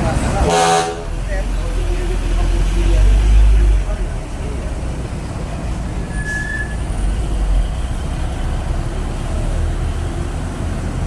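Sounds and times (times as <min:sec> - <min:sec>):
traffic rumbling past: 0:00.0 - 0:11.0
high squeal: 0:06.0 - 0:07.0.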